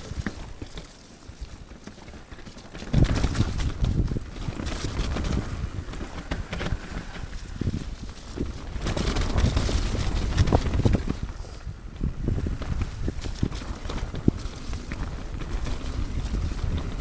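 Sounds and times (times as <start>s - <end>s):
bike knocking and rattling: 0.0s - 17.0s
wind on microphone: 2.7s - 17.0s.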